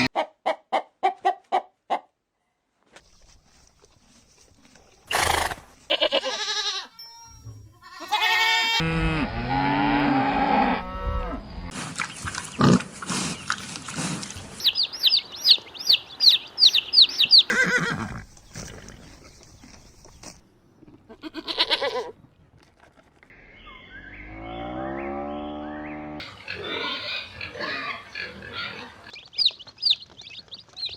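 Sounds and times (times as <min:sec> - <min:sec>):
farm animal calls: 0:05.1 - 0:07.1, 0:12.3 - 0:19.4, 0:23.4 - 0:30.9.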